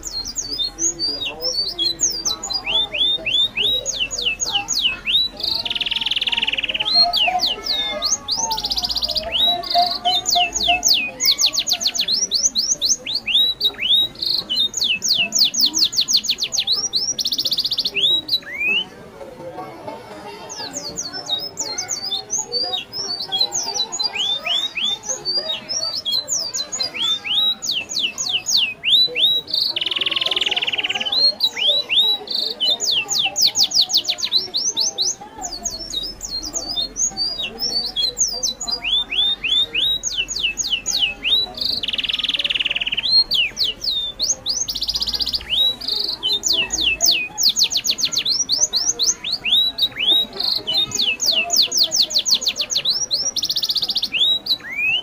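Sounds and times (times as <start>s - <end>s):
birds calling with whistled notes: 0.0s - 19.1s, 20.3s - 55.0s.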